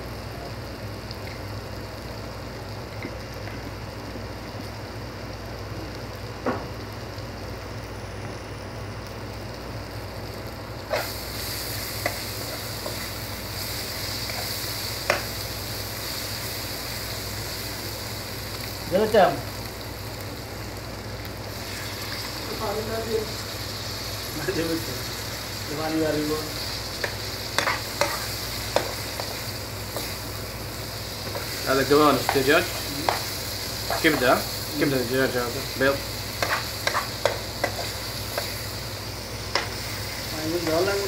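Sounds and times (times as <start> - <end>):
masala sizzling in a frying pan: 0.0 - 41.0.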